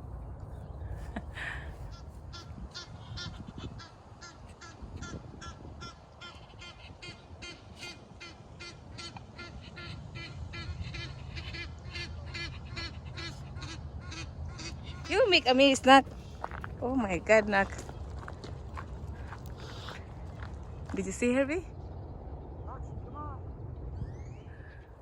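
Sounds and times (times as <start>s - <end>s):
geese honking: 1.9s - 17.9s.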